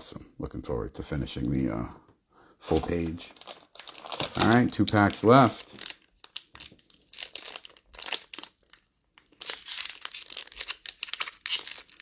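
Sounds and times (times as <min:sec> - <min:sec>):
wrapper being torn and crinkled: 0:03.0 - 0:12.0.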